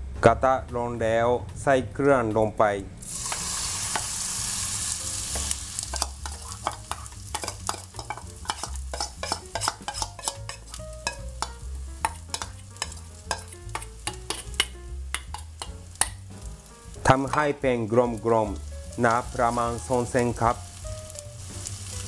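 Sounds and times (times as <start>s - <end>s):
batter sizzling in oil: 3.0s - 22.0s
spoon scraping bowl and pan: 3.1s - 16.4s.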